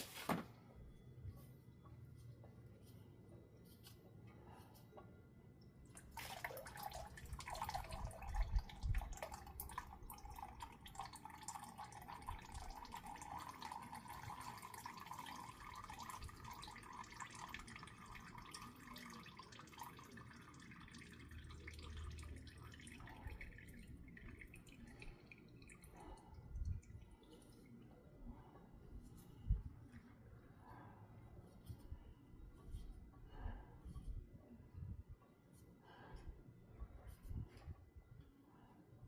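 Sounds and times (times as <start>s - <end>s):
oil pouring into a pan: 6.0s - 25.8s.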